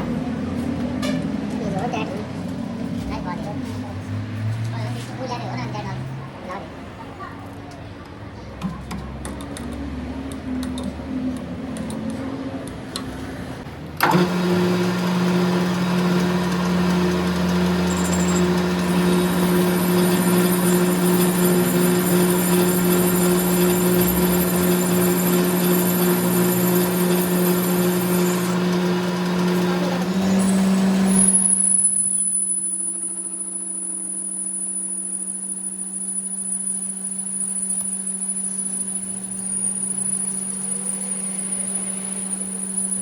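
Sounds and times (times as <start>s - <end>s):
machine motor humming: 14.0s - 32.1s
faint high whine: 30.2s - 43.0s.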